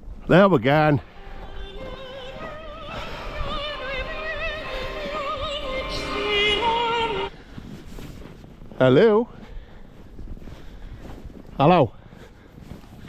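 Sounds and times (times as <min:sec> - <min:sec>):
musical accompaniment: 0:01.0 - 0:07.3
operatic singing with vibrato: 0:01.0 - 0:07.3.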